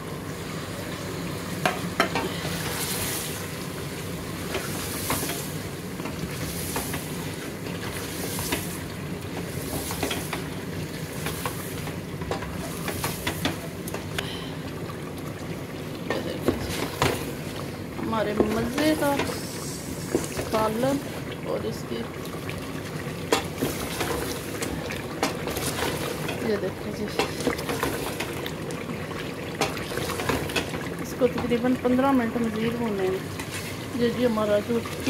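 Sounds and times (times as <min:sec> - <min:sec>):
food sizzling in hot oil: 0:00.4 - 0:14.2, 0:15.4 - 0:35.0.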